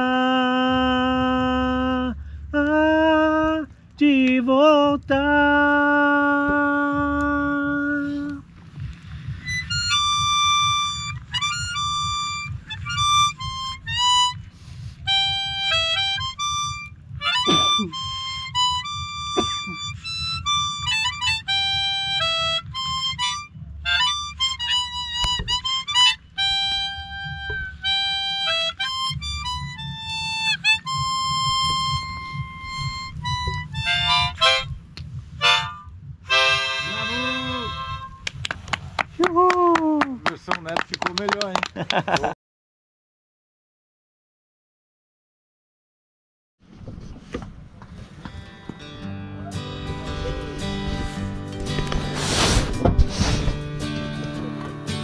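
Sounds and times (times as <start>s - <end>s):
solo harmonica melody: 9.4s - 38.2s.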